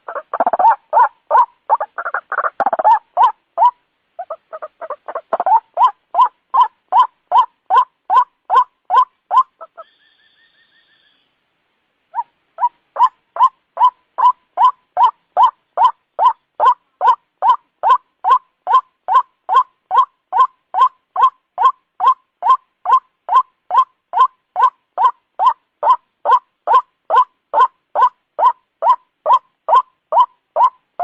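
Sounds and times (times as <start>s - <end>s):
waterhen calling harshly: 0.0s - 11.2s, 12.1s - 30.8s
faint thin whistle: 9.8s - 11.4s.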